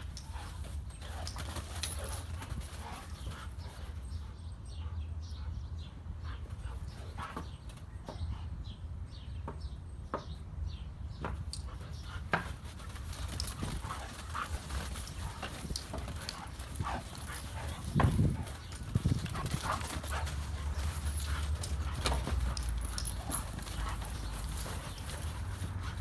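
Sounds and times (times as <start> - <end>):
dogs paws scuffling: 0.0 - 4.4, 11.2 - 26.0.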